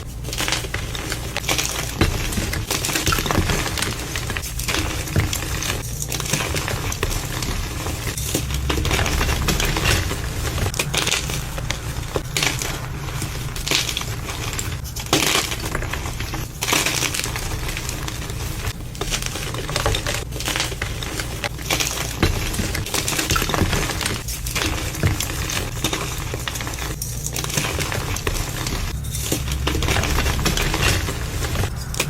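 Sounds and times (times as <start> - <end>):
concrete mixing scraping: 0.0 - 32.0
small stones clinking: 0.2 - 32.0.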